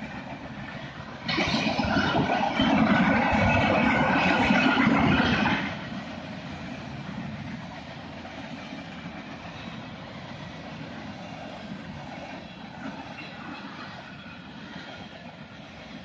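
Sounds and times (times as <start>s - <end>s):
freight cars rumbling on rails: 0.0s - 16.0s.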